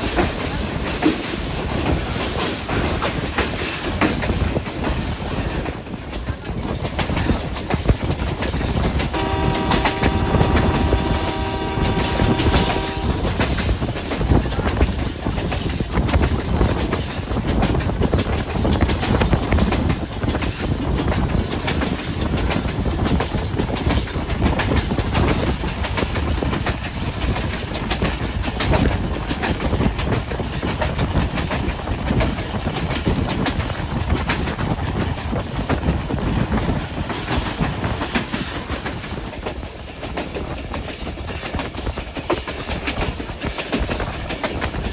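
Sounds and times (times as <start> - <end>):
train wheels rumbling and clattering: 0.0 - 44.9
train horn blast: 9.1 - 13.5.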